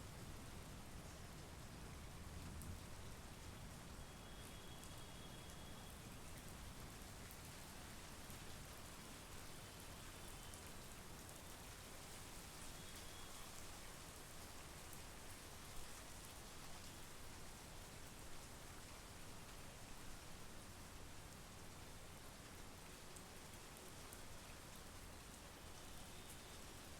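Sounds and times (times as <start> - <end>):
rain falling on foliage: 0.0 - 26.9.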